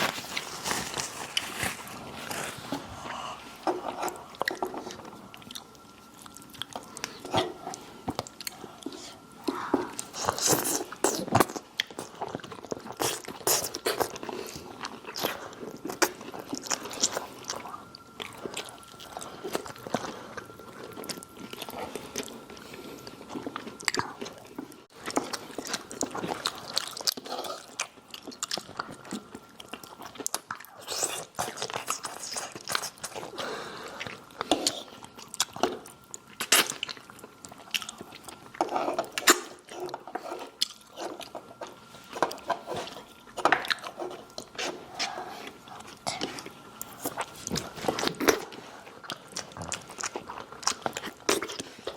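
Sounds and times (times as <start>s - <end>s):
chewing crunchy food: 0.0s - 51.9s.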